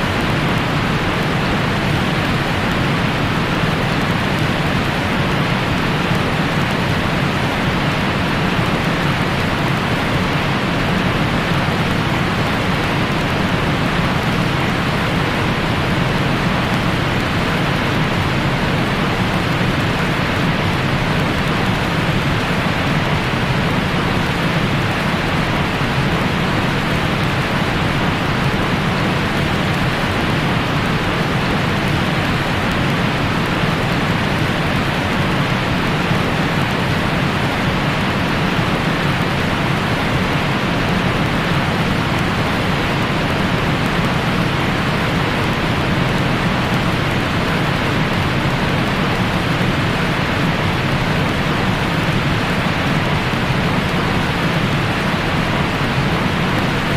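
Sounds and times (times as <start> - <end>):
steady white noise hiss: 0.0 - 56.9.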